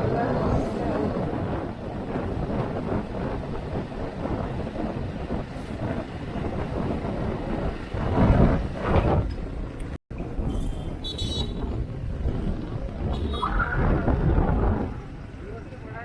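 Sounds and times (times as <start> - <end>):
wind rush: 0.0 - 15.9
vehicle horn toot: 10.5 - 11.7.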